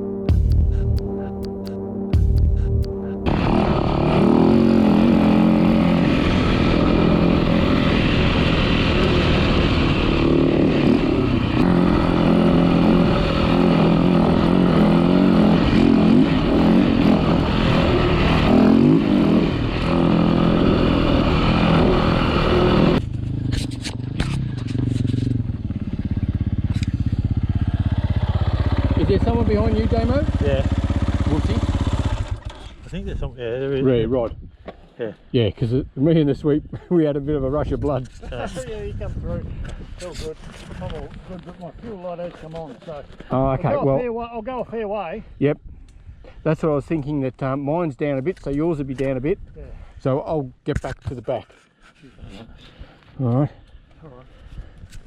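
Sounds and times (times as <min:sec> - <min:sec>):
dirt bike engine running: 0:00.0 - 0:32.8.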